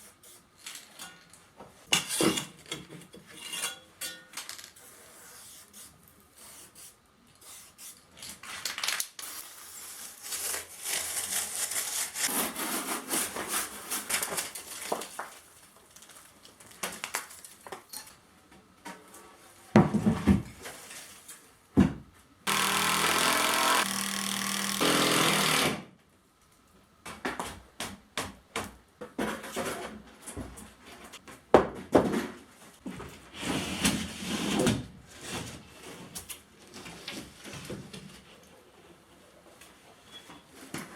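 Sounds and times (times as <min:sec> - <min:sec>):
rasping sawing strokes on wood: 0:22.5 - 0:25.6
power tool running: 0:22.5 - 0:25.8.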